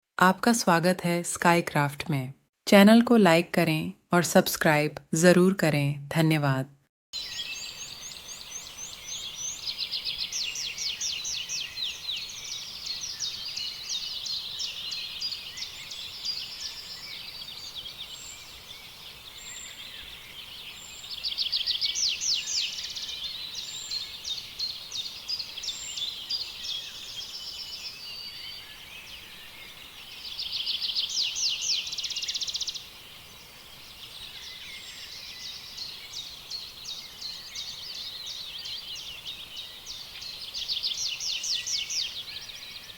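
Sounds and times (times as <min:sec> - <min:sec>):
songbirds chirping and trilling: 0:07.2 - 0:42.9.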